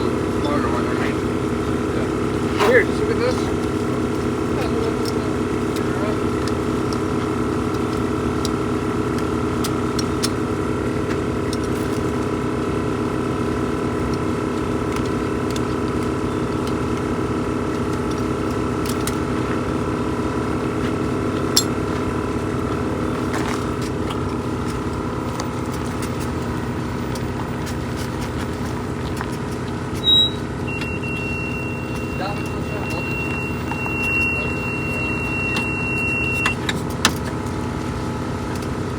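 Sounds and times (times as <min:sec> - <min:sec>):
motor running: 0:00.0 - 0:38.9
short high beep: 0:30.0 - 0:36.6.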